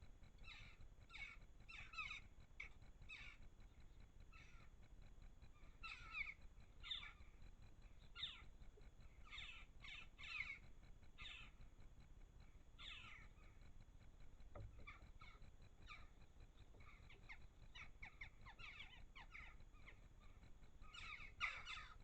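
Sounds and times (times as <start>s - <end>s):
garden bird calling: 5.6s - 7.4s, 8.0s - 8.5s, 9.1s - 11.6s, 12.8s - 13.6s, 14.5s - 22.0s.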